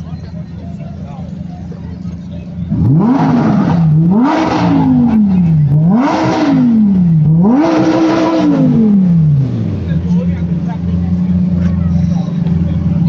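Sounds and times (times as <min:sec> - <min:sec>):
car engine revving: 0:00.8 - 0:13.0.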